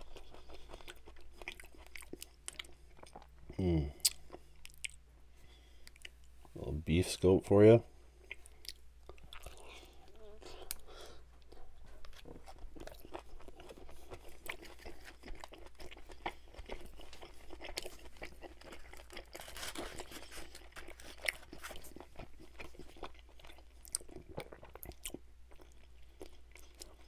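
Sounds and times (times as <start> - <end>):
close chewing with wet mouth clicks: 0.0 - 3.4, 8.3 - 10.0, 10.6 - 27.0.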